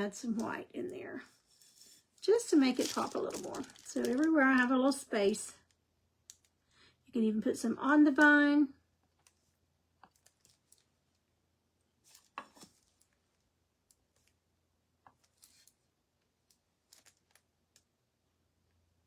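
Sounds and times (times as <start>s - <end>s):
faint small clicks and taps: 5.6s - 6.6s, 9.0s - 11.2s, 15.0s - 18.0s.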